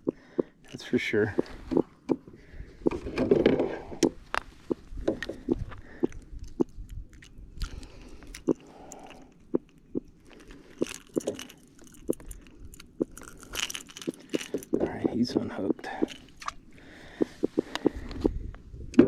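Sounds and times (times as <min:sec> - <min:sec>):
lure and hooks clicking: 0:06.1 - 0:16.6.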